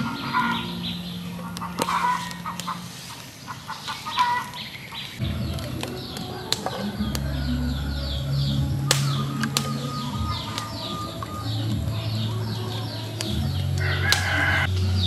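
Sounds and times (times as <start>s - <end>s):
birds chirping: 0.0s - 15.0s
sharp clicks: 8.8s - 11.8s.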